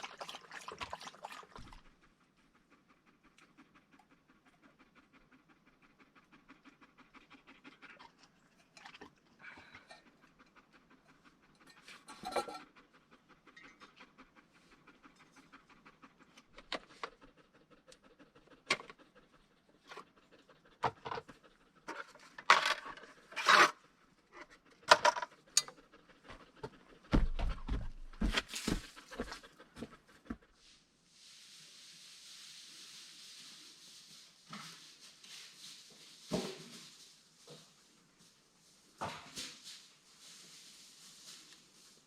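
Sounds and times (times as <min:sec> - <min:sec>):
dog panting: 0:00.2 - 0:30.8
sharp knocks and scrapes: 0:11.6 - 0:12.8, 0:20.8 - 0:23.8.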